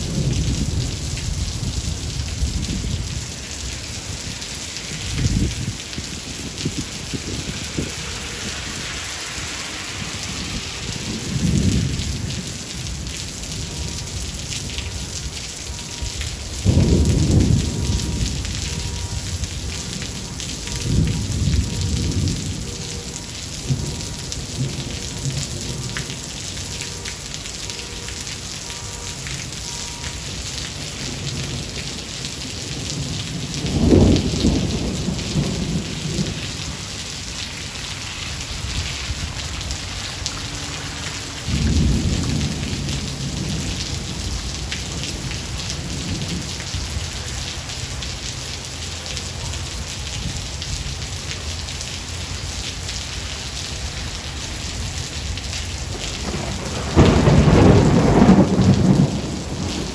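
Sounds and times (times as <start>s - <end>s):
rolling thunder: 0.0s - 26.2s, 30.9s - 47.0s, 54.7s - 59.9s
heavy rain falling: 0.0s - 59.9s.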